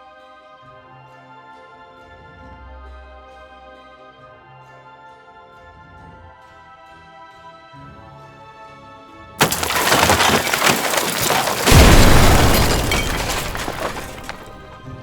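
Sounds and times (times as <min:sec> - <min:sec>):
loud breaking crash: 0:09.4 - 0:15.0.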